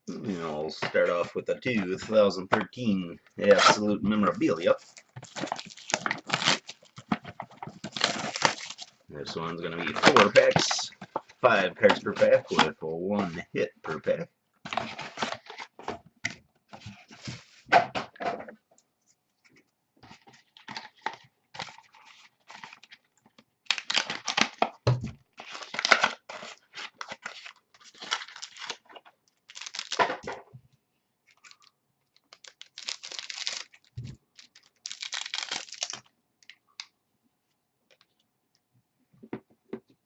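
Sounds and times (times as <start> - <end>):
card wrappers tearing and crinkling: 3.4 - 9.0, 9.7 - 10.9, 20.6 - 30.1, 31.3 - 36.6.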